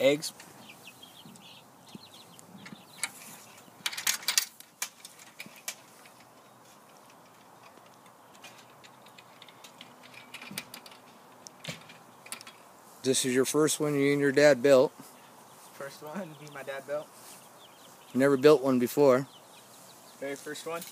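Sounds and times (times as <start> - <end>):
light clicks and knocks: 3.8 - 12.6.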